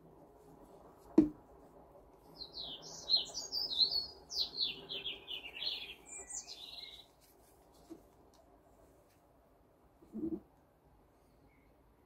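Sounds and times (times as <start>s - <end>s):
small bird singing: 2.2s - 7.2s.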